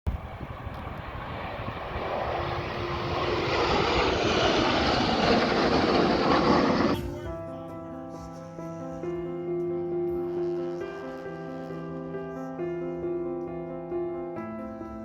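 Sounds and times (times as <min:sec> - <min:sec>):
airplane engine rumble: 0:00.1 - 0:07.5.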